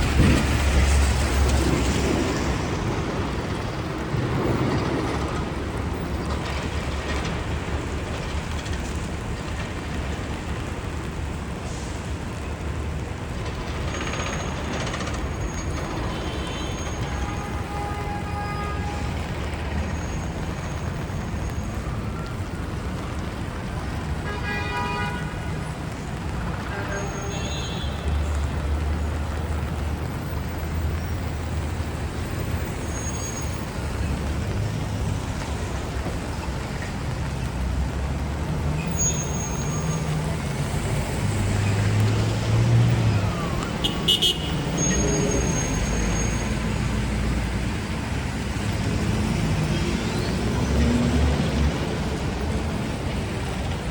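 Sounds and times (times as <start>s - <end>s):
tyres hissing on wet road: 0.0s - 53.9s
car horn toots: 43.8s - 45.0s.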